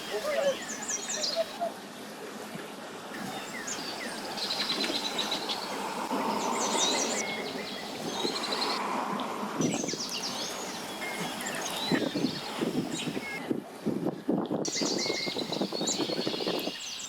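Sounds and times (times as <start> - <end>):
birds chirping and trilling: 0.0 - 1.6, 3.2 - 8.8, 9.6 - 13.4, 14.7 - 17.0
outdoor background noise: 0.0 - 17.0.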